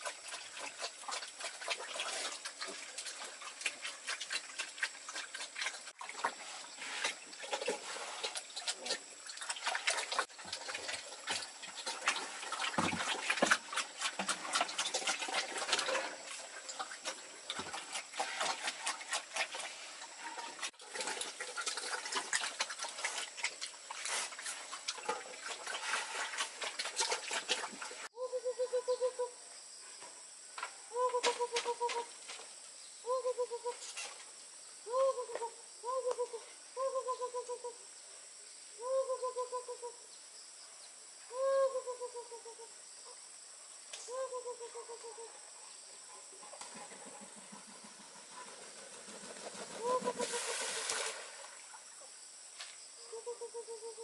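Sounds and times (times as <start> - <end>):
pigs chomping and slurping: 0.0 - 6.5, 7.4 - 19.8, 20.7 - 28.1
rapid pulsed animal calls: 34.8 - 37.8, 46.7 - 50.8.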